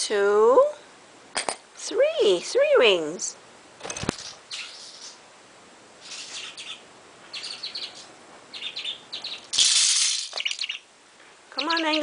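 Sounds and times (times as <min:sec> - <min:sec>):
budgie chirping: 0:04.2 - 0:05.3, 0:06.0 - 0:10.9, 0:11.5 - 0:12.0.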